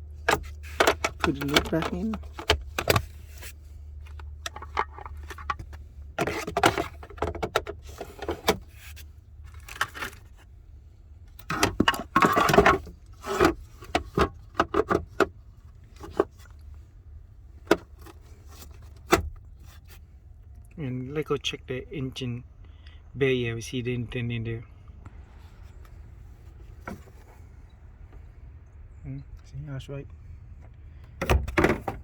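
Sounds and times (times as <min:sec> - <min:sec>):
steady low hum: 0:00.0 - 0:31.2
hard plastic clicking and rattling: 0:00.2 - 0:03.2, 0:04.0 - 0:08.6.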